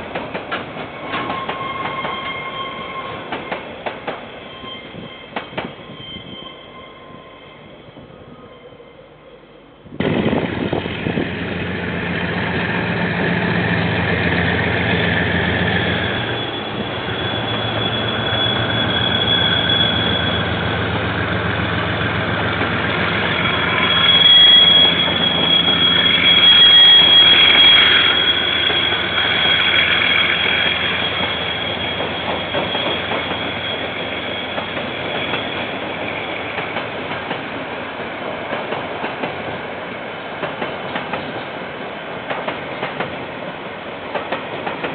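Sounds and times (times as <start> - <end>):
diesel locomotive engine: 0.0 - 44.9
train wheel squeal: 0.8 - 9.4, 11.8 - 37.3.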